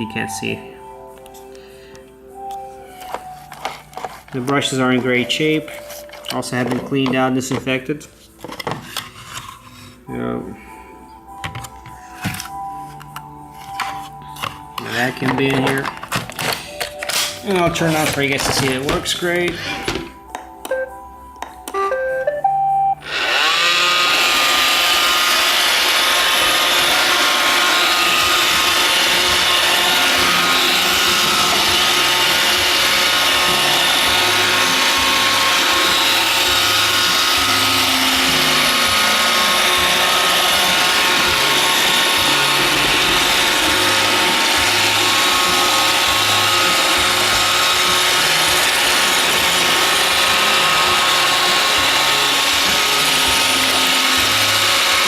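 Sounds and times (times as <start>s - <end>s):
robot vacuum motors whirring: 23.0s - 55.0s.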